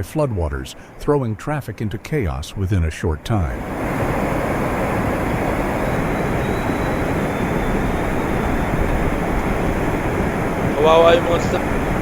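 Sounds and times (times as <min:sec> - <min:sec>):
floodwater rushing: 0:03.4 - 0:12.0.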